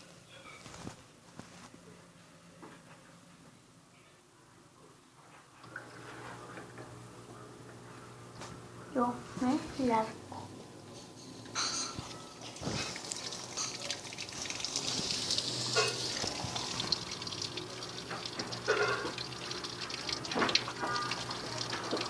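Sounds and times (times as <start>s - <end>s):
water rushing into washing machine: 12.4s - 22.0s.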